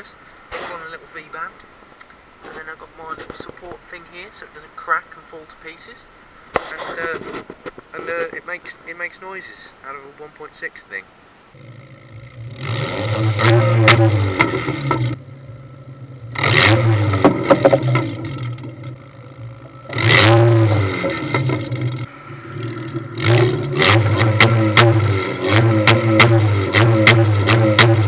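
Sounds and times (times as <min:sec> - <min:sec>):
exhaust crackles: 0:00.0 - 0:28.0
car engine idling and revving: 0:11.5 - 0:28.0.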